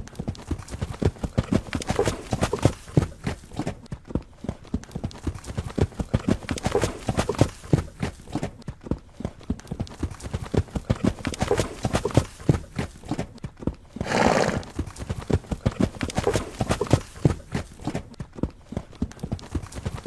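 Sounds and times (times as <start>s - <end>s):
horse hooves clip-clopping: 0.0s - 20.0s
horse whinny: 14.0s - 14.7s.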